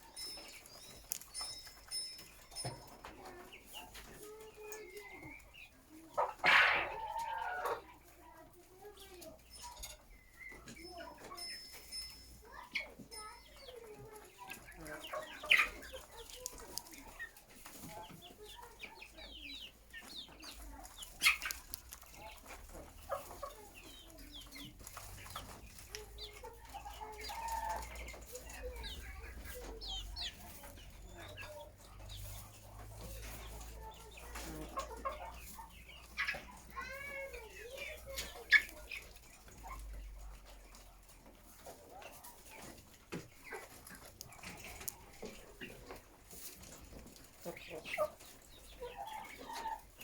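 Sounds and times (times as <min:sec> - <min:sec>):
chickens clucking: 0:00.0 - 0:50.0.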